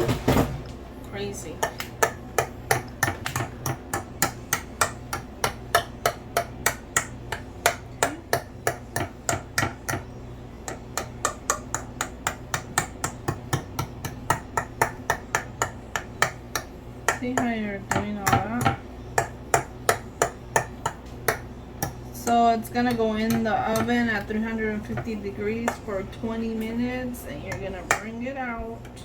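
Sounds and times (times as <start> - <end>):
metal fork tapping baking dish: 1.6 - 10.1.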